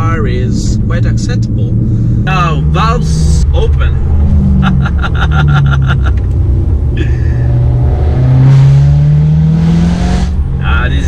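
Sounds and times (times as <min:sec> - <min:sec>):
exhaust crackles: 0:00.0 - 0:11.0
loud car engine revving: 0:00.0 - 0:11.0.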